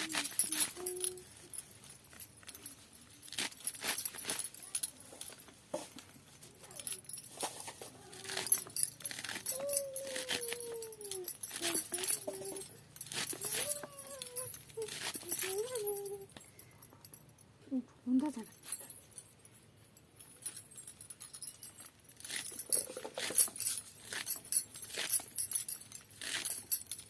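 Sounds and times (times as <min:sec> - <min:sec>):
dog whining: 0:08.0 - 0:16.3.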